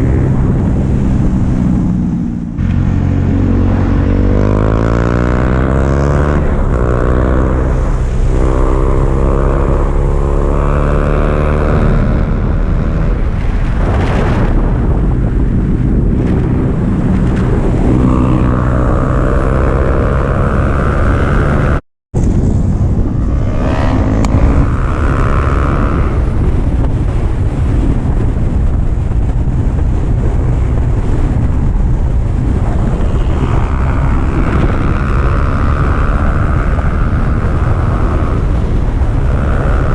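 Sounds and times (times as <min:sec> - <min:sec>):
motorcycle engine revving: 0:00.0 - 0:39.9
wind rushing over microphone: 0:00.0 - 0:39.9.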